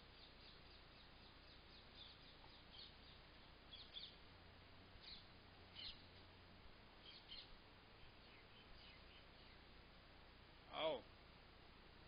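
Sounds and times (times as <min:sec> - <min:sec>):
small birds chirping: 0:00.0 - 0:04.3, 0:04.9 - 0:09.8.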